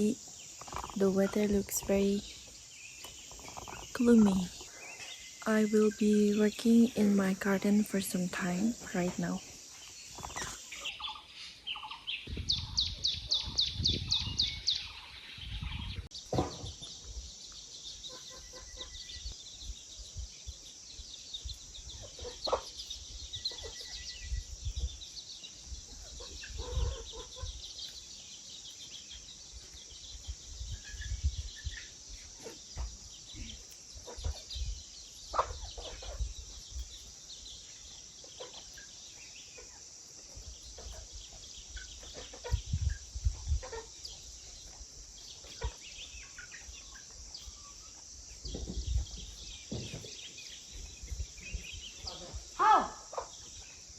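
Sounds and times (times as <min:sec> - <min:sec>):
insects chirring: 0:00.0 - 0:53.9
chickens clucking: 0:07.0 - 0:16.8, 0:18.0 - 0:19.0, 0:21.9 - 0:24.1, 0:25.8 - 0:28.1, 0:31.8 - 0:53.6
low knocks and thumps: 0:12.2 - 0:14.4, 0:15.5 - 0:17.0, 0:48.4 - 0:50.3.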